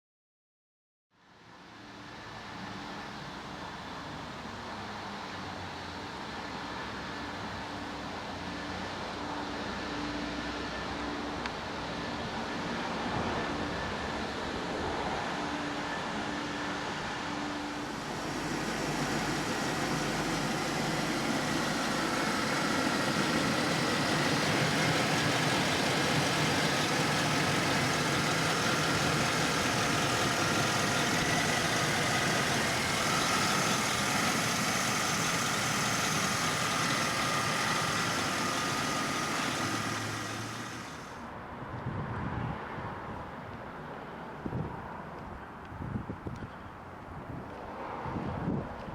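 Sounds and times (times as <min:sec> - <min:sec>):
faint steady whine: 0:09.2 - 0:41.2
truck engine running: 0:16.8 - 0:41.2.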